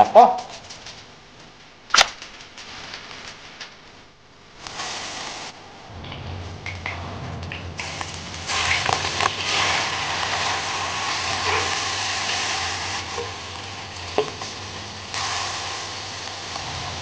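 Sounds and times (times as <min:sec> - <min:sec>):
crab sizzling in hot oil: 0:04.6 - 0:05.6, 0:07.8 - 0:17.0.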